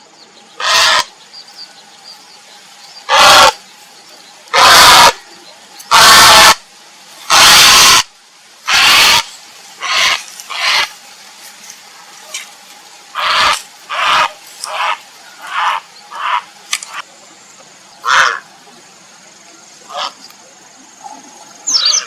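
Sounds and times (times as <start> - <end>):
heron croaking squawks: 0.6 - 1.1, 3.1 - 3.6, 4.5 - 5.2, 5.9 - 6.6, 7.3 - 8.1, 8.7 - 10.9, 13.2 - 17.0, 18.0 - 18.4.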